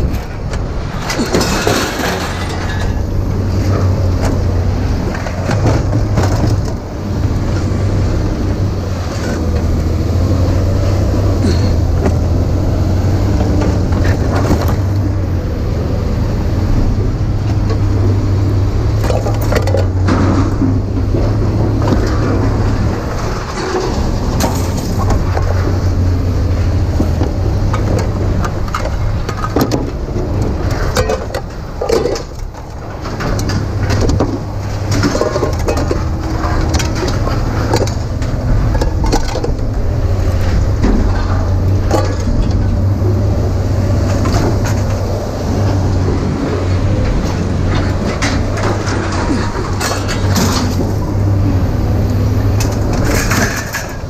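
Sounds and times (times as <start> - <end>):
rattles and clatters: 0.0 - 54.0
vehicle rumbling in motion: 0.0 - 54.0.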